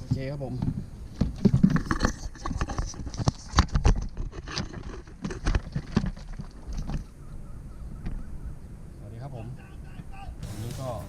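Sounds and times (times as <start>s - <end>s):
gear knocking and scraping in boat: 0.0s - 7.1s.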